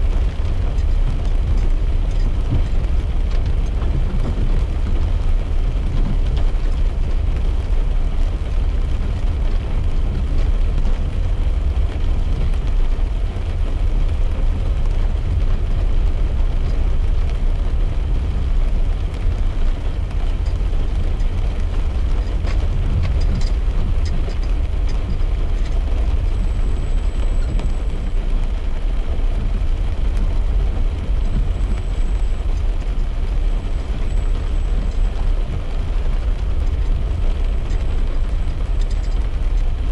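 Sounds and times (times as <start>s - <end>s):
low road and engine rumble: 0.0s - 39.9s
tyre and rain noise: 0.0s - 39.9s.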